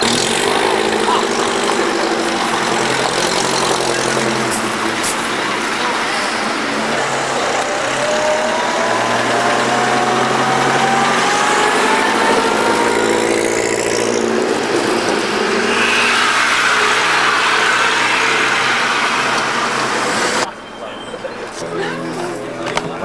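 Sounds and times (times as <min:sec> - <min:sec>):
thin rising whine: 0:00.0 - 0:23.0
vehicle engine running: 0:00.0 - 0:23.0.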